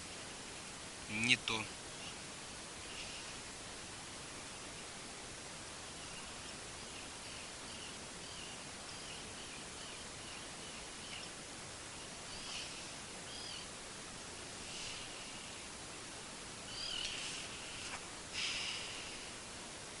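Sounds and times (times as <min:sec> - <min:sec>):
steady outdoor hiss: 0:00.0 - 0:20.0
small birds chirping: 0:01.1 - 0:03.4, 0:05.8 - 0:13.8, 0:14.4 - 0:19.4.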